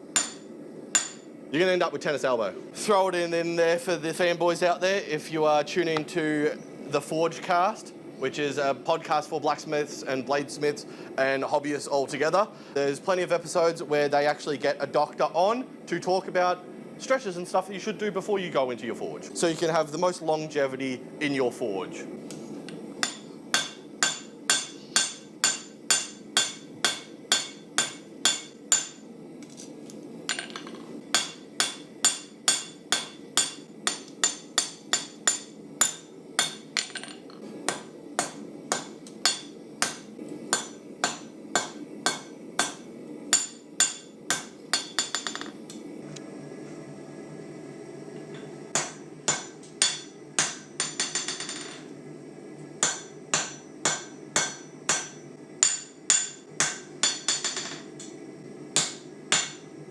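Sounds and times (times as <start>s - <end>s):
hammer striking steel on anvil: 0.1s - 1.3s, 23.0s - 29.1s, 30.3s - 45.5s, 48.7s - 51.8s, 52.8s - 58.2s, 58.8s - 59.7s.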